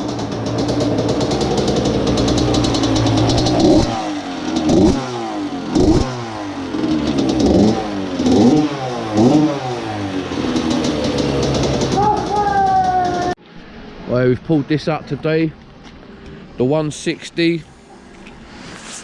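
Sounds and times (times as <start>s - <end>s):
motorbike engine revving: 0.0s - 13.4s.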